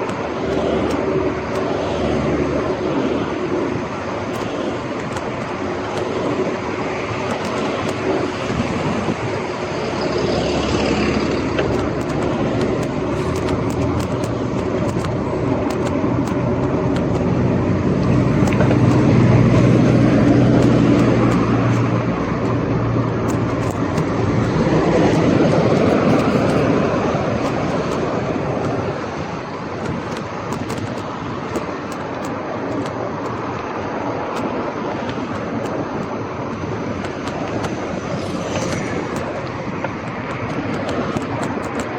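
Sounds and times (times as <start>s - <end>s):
bike rattling clicks: 0.0s - 41.9s
traffic: 0.0s - 41.9s
tyre and wind noise: 0.0s - 41.9s
vehicle engine hum: 0.0s - 41.9s.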